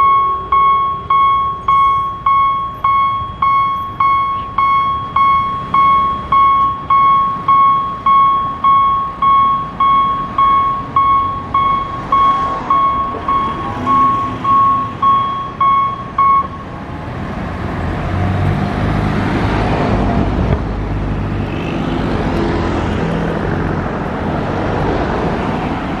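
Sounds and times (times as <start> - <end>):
level crossing warning bell: 0.0 - 16.8
road vehicles driving past: 0.0 - 26.0.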